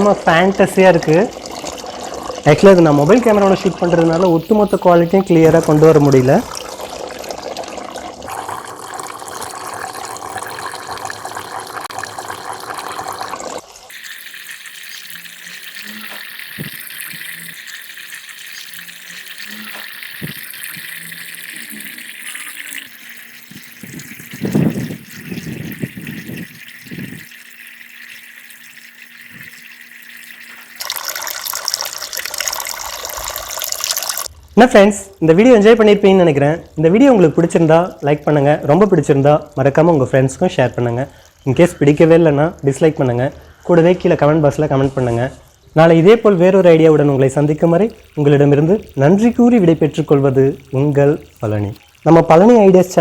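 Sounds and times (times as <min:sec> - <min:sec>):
fountain water splashing and trickling: 0:04.0 - 0:34.3, 0:45.6 - 0:53.0.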